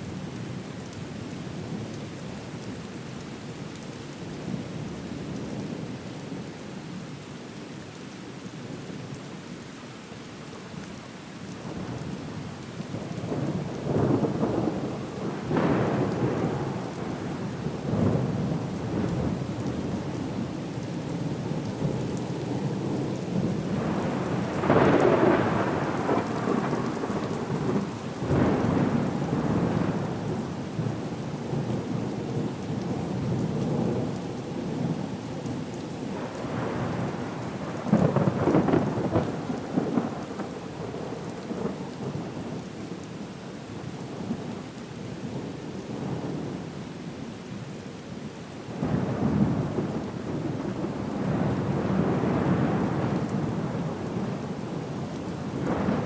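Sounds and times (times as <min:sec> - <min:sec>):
steady rain: 0:00.0 - 0:56.0
rolling thunder: 0:23.4 - 0:30.9, 0:36.2 - 0:42.3, 0:48.8 - 0:56.0.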